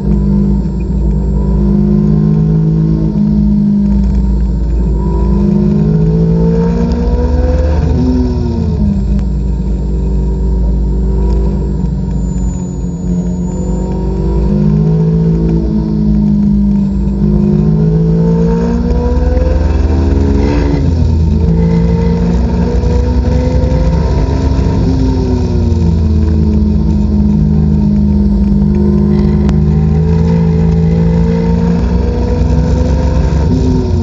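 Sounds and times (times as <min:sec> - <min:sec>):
car engine pulling hard: 0:00.0 - 0:34.0
wind and road noise: 0:00.0 - 0:34.0.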